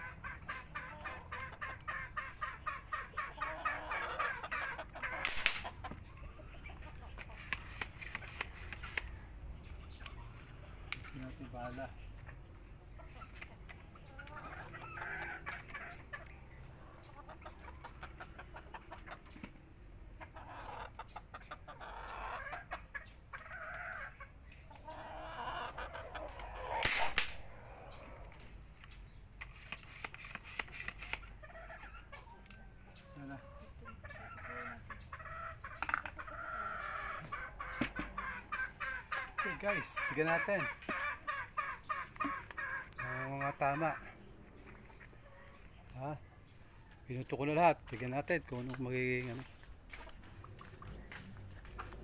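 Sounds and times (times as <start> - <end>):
chickens clucking: 0.0 - 52.0
quick clicks: 5.2 - 5.7, 7.4 - 9.2, 26.8 - 27.4, 29.4 - 31.3
sharp crack: 5.2 - 5.8, 26.8 - 27.6.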